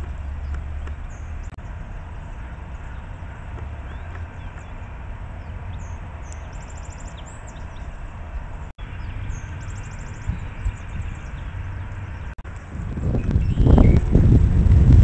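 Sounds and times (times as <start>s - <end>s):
songbirds chirping: 0.0s - 14.2s
low rumble: 7.3s - 15.0s.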